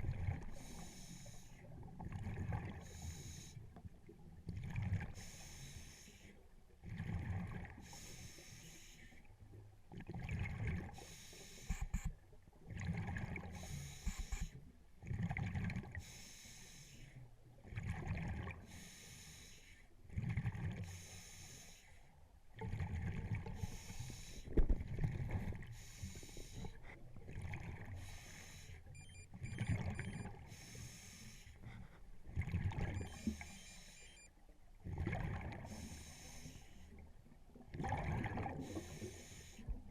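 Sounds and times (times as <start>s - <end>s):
hissing regulator inhalations: 0.6s - 1.6s, 2.8s - 3.6s, 11.0s - 12.0s, 13.6s - 14.6s, 16.0s - 17.2s, 18.7s - 19.8s, 20.9s - 22.0s, 23.6s - 24.5s, 25.7s - 26.8s, 27.9s - 32.0s, 33.0s - 34.3s, 35.7s - 37.0s, 38.6s - 39.7s
exhaled bubbles rumbling: 24.6s - 25.8s, 27.2s - 28.0s, 32.3s - 33.4s, 34.8s - 35.7s, 37.6s - 38.9s.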